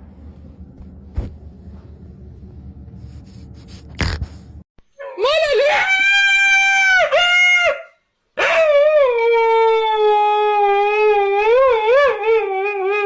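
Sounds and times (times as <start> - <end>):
dog howling: 5.0 - 13.0.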